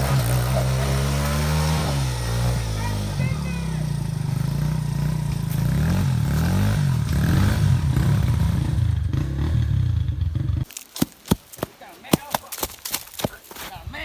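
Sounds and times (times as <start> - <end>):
pit bike engine revving: 0.0 - 10.7.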